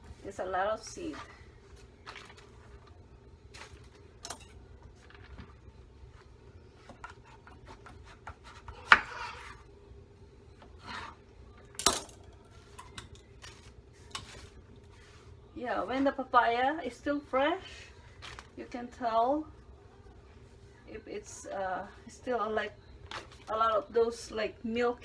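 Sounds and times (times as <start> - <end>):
knife scraping on cutting board: 6.9 - 9.6.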